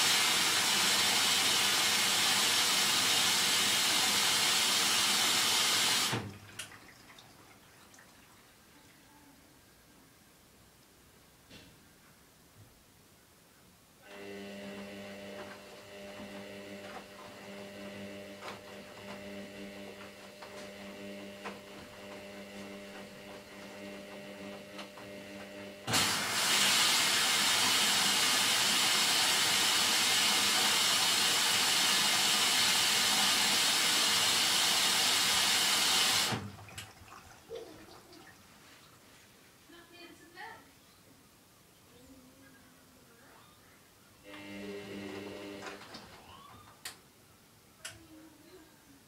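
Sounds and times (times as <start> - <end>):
water rushing into washing machine: 0.0 - 8.6, 14.8 - 38.5
washing machine electric hum: 0.0 - 8.9, 14.0 - 39.0, 44.2 - 46.9.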